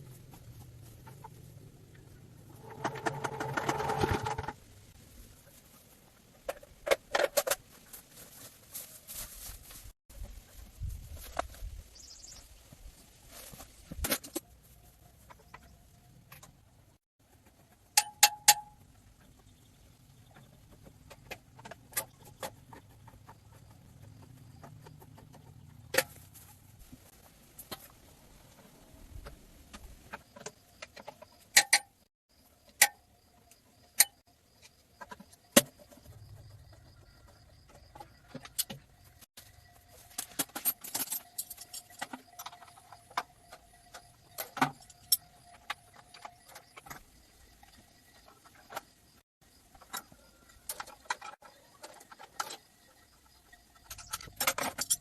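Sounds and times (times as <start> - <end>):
metal tools clinking: 40.0 - 43.2, 53.8 - 55.0.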